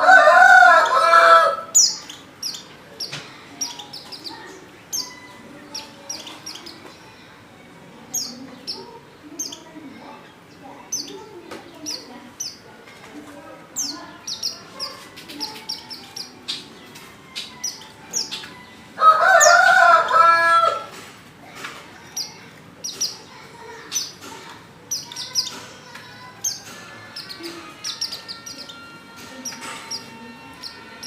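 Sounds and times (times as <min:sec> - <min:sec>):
rooster crowing: 0:00.0 - 0:01.8, 0:19.0 - 0:20.9.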